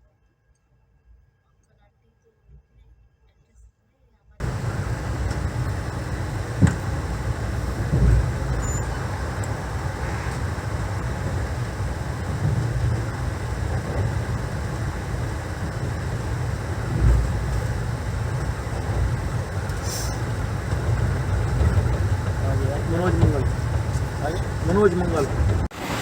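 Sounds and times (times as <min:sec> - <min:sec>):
dull thumps: 0:04.4 - 0:25.7
train coach rumbling: 0:04.4 - 0:26.0.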